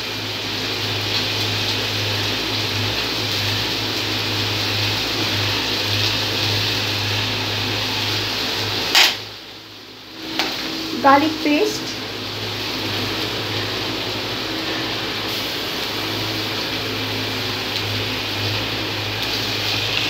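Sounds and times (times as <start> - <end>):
vegetables sizzling in a wok: 0.0 - 20.0
low steady hum: 9.3 - 19.2.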